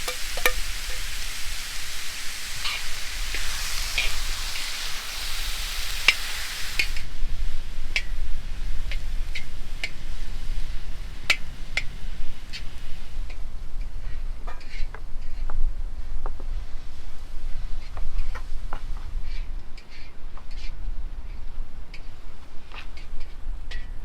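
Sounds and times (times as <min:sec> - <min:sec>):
utensil tapping a pan: 0:00.0 - 0:07.0
frying hiss: 0:00.0 - 0:20.7.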